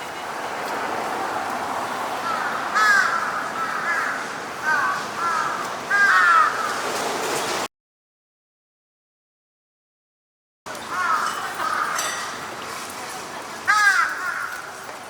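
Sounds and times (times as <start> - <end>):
steady background noise: 0.0 - 7.7, 10.7 - 15.0
birds calling: 2.2 - 6.9, 10.7 - 12.7.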